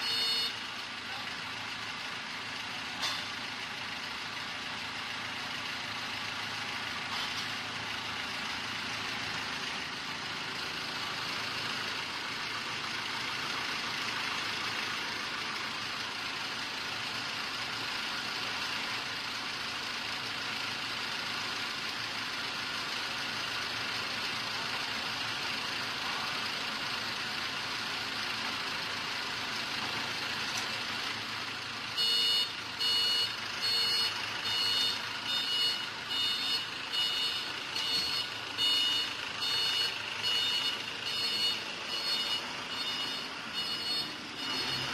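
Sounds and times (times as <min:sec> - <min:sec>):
diesel generator running: 0:00.0 - 0:44.9
high electronic beeping: 0:32.0 - 0:44.9.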